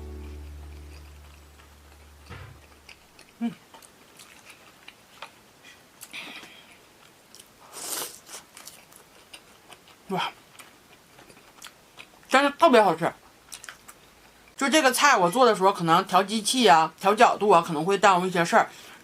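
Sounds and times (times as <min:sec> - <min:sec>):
person chewing: 0:00.0 - 0:12.3, 0:13.5 - 0:14.4.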